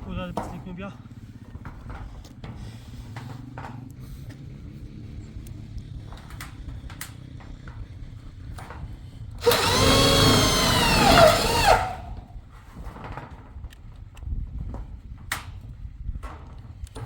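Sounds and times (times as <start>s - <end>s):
small motor running: 9.4s - 12.3s.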